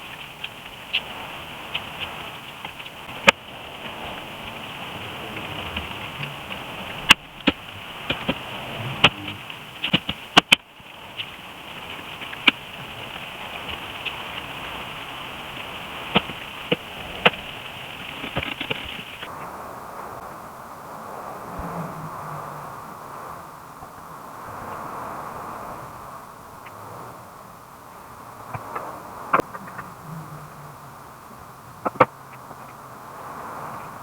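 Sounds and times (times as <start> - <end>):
steady high hiss: 0.0 - 34.0.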